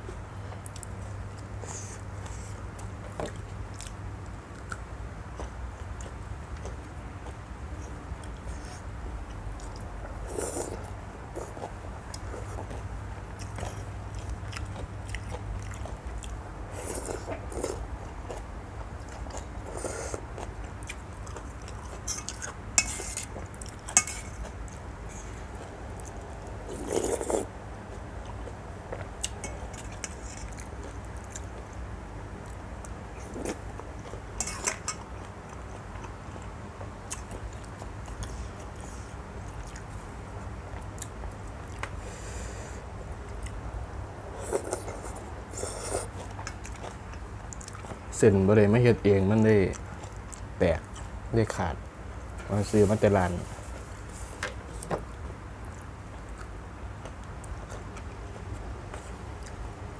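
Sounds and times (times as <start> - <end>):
low steady hum: 0.0 - 59.9
person chewing: 5.4 - 31.8, 32.4 - 42.7, 44.3 - 48.0, 54.2 - 59.6.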